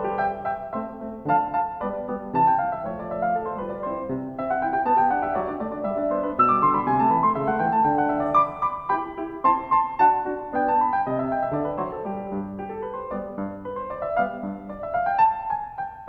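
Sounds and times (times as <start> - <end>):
solo piano melody: 0.0 - 16.0.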